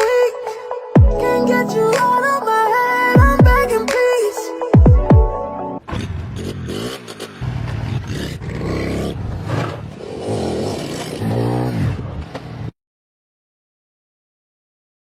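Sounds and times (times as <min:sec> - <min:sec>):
small engine revving: 0:05.9 - 0:12.7.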